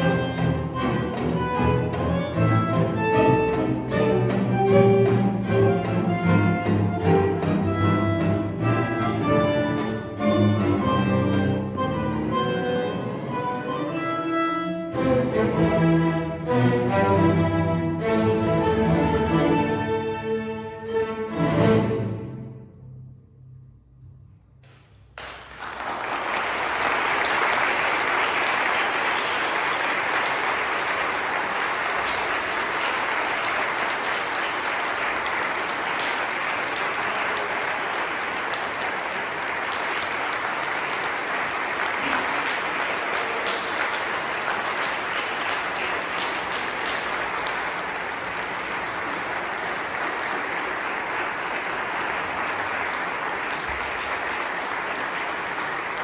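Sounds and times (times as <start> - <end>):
audience applauding: 25.2 - 56.0.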